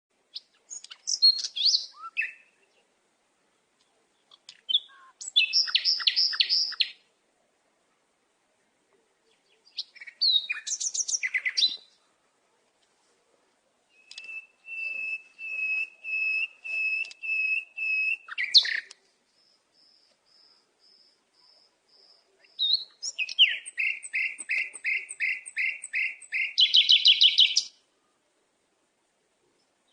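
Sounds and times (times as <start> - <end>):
bird singing: 0.3 - 2.9, 3.8 - 7.0, 9.3 - 12.0, 13.9 - 27.8.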